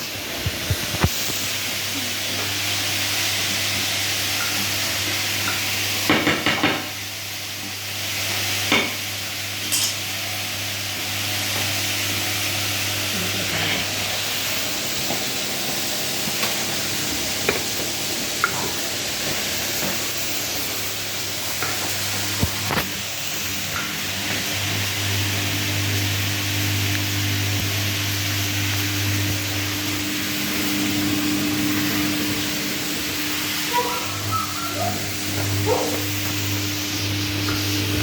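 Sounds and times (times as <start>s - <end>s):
washing machine running: 0.0s - 38.0s
water and air hissing: 28.4s - 38.0s.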